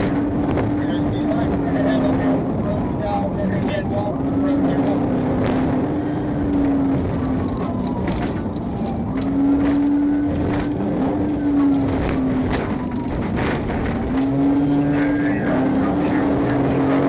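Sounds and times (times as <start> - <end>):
car engine drone: 0.0 - 17.0
road noise: 0.0 - 17.0.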